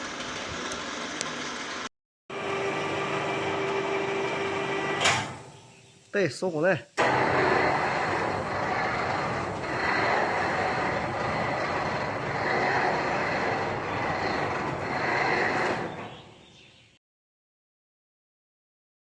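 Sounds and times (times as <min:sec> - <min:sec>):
machinery running: 0:00.0 - 0:05.5, 0:07.0 - 0:16.4.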